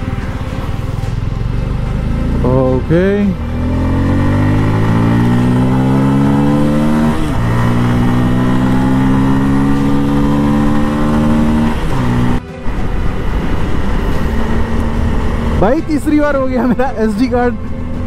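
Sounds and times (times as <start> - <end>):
motorcycle engine accelerating: 0.0 - 16.8.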